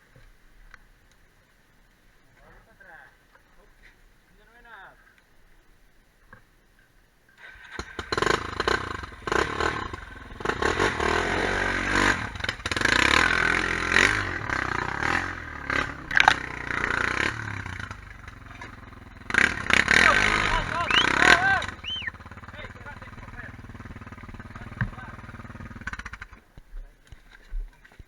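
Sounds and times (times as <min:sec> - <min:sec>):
quad bike engine revving: 0:07.4 - 0:26.5.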